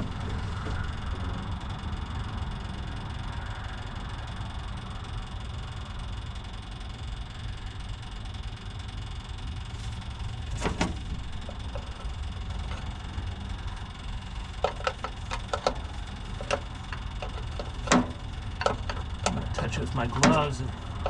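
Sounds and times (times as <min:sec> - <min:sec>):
electric fuel pump humming: 0:00.0 - 0:21.0
light clicks and knocks: 0:14.6 - 0:20.5.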